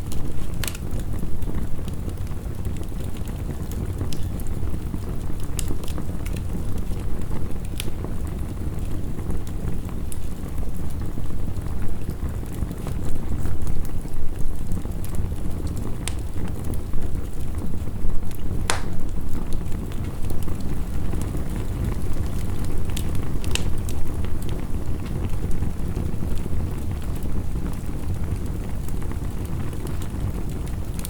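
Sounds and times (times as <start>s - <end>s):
sharp pops from fire: 0.0s - 4.8s, 5.4s - 6.8s, 7.6s - 8.3s, 18.3s - 25.6s
wood fire crackling: 0.0s - 31.0s.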